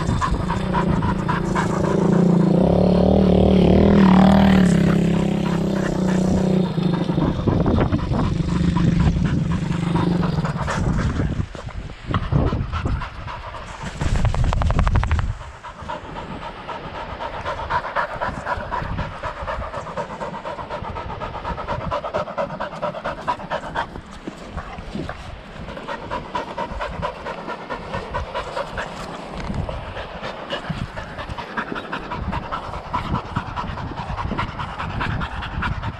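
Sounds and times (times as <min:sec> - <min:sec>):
pit bike engine running: 0:00.0 - 0:11.4
dog panting rapidly: 0:00.0 - 0:35.9.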